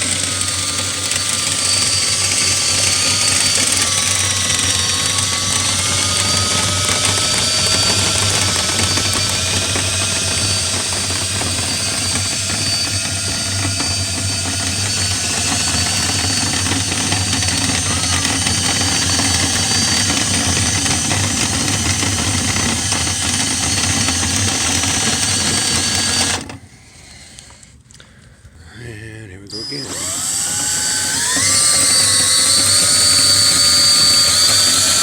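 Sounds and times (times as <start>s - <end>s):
motor humming: 0.0s - 26.6s, 29.5s - 35.0s.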